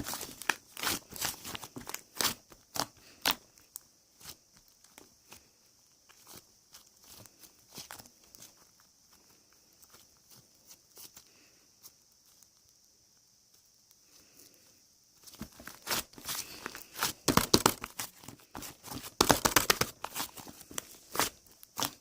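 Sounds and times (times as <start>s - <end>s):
slime crackling and popping: 0.0s - 5.4s, 15.4s - 22.0s.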